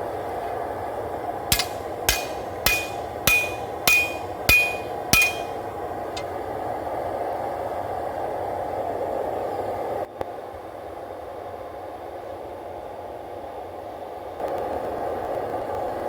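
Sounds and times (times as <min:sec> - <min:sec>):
hammer striking blade on anvil: 0:01.5 - 0:06.3.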